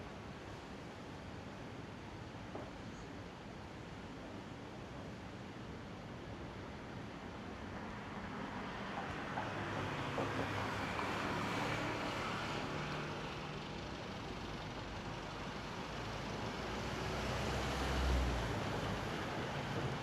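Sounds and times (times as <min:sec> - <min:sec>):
passing vehicles: 0:07.9 - 0:20.0.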